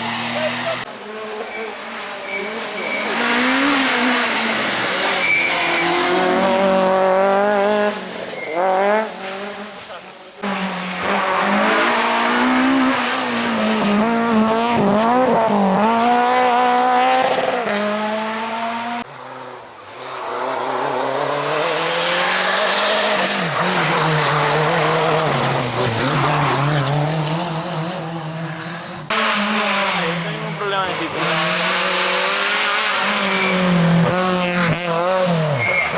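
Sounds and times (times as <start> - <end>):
rally car engine revving: 0.0 - 35.9
tyre squeal: 0.3 - 6.3, 8.2 - 8.7, 31.5 - 34.8, 35.4 - 35.9.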